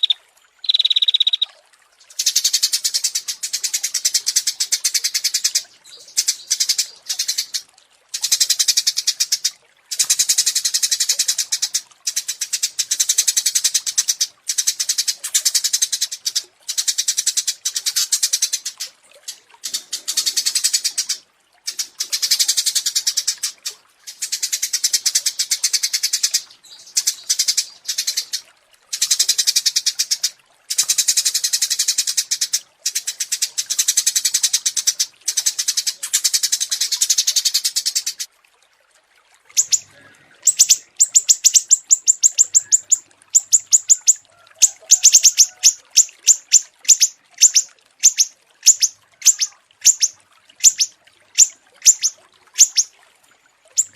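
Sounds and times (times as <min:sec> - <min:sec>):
bird sharp high chirps: 0:00.0 - 0:01.5, 0:39.6 - 0:39.9, 0:40.5 - 0:52.9
songbird rapid trills: 0:00.0 - 0:38.3, 0:39.5 - 0:52.9.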